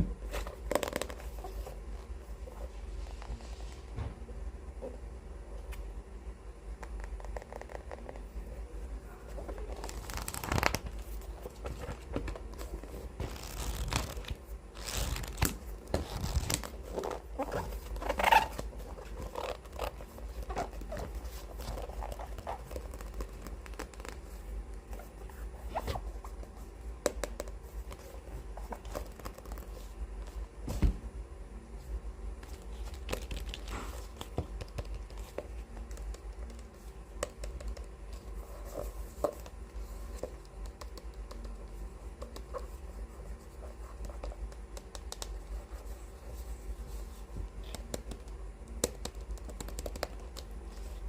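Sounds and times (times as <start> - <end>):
book pages swishing: 9.4 - 26.7.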